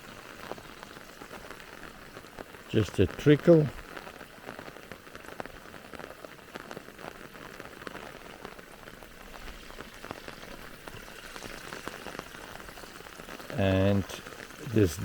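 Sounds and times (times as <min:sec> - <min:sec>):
water trickling in a canal: 0:00.0 - 0:05.6, 0:07.2 - 0:15.0
light rain pattering: 0:00.0 - 0:15.0.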